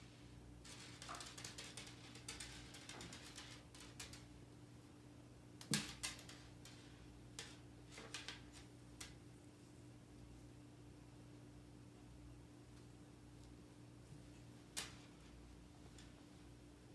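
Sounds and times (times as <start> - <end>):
cat playing with string: 0.6 - 4.3, 5.6 - 9.3.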